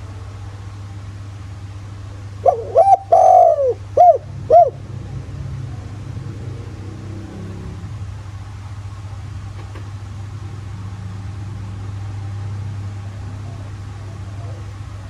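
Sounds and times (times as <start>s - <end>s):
dove cooing: 2.2s - 7.8s, 13.3s - 15.0s.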